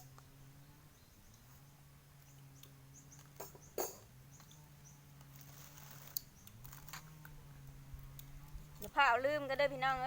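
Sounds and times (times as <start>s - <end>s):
birds chirping: 0.0s - 6.9s
low steady hum: 0.0s - 10.0s.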